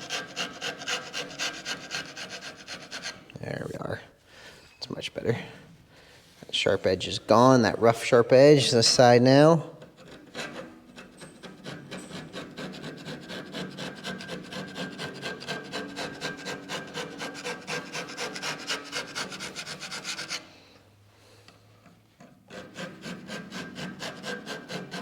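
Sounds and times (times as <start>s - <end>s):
hand file rasping on sheet metal: 0.0s - 3.3s, 9.9s - 20.6s, 22.5s - 25.0s.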